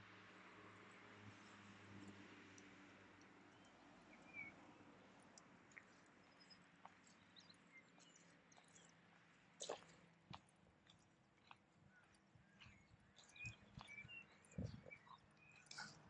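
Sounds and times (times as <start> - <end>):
small birds chirping: 3.5 - 16.0.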